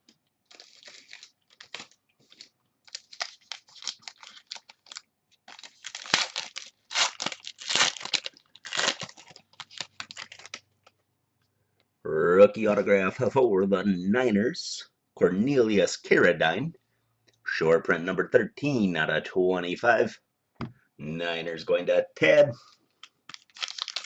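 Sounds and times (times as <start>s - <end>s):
foil wrapper tearing and crinkling: 0.5s - 10.6s, 23.3s - 24.0s.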